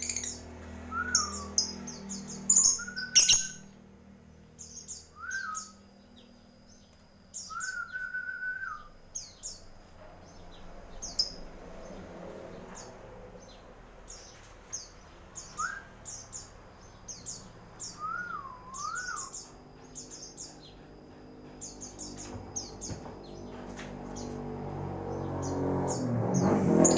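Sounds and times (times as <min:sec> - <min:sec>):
lower whistled bird notes: 0:00.0 - 0:03.7, 0:04.6 - 0:06.2, 0:07.3 - 0:09.6, 0:15.4 - 0:16.5, 0:17.1 - 0:20.8
small birds chirping: 0:00.0 - 0:03.7, 0:04.3 - 0:26.9.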